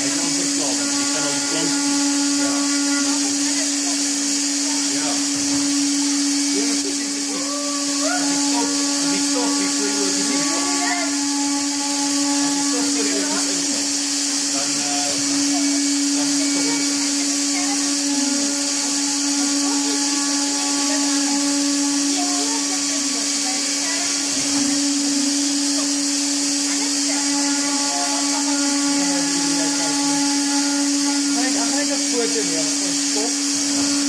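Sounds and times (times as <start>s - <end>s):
faint voices: 0.0s - 34.0s
woodworking machine running: 0.0s - 34.0s.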